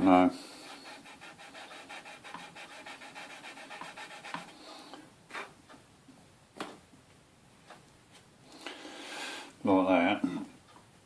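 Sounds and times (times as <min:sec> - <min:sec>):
sanding plastic by hand: 0:00.6 - 0:04.6.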